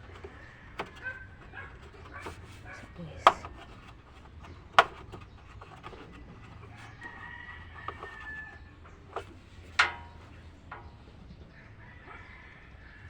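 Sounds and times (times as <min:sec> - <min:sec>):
rooster crowing: 0:06.7 - 0:08.8, 0:11.5 - 0:13.0.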